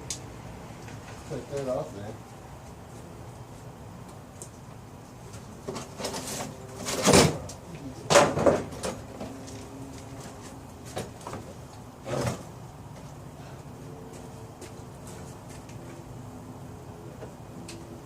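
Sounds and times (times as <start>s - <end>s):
objects scraping and clunking: 5.3s - 7.5s, 8.1s - 16.1s.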